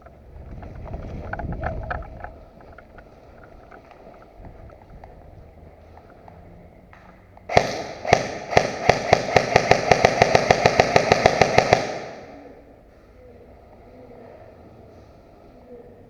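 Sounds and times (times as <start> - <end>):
airsoft gun firing: 7.5 - 12.5.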